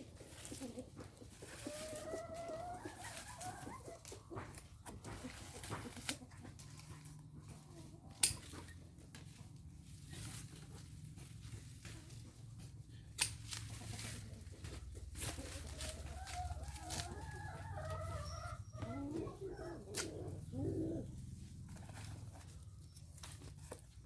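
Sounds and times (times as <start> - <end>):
chicken calling: 0.6 - 4.4, 15.2 - 22.7.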